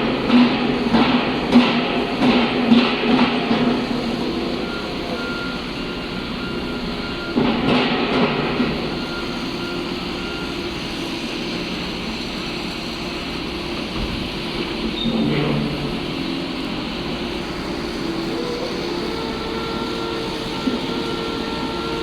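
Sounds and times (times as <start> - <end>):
heavy construction machinery running: 0.0 - 22.0
vehicle backup alarm beeping: 3.6 - 12.5, 17.3 - 22.0.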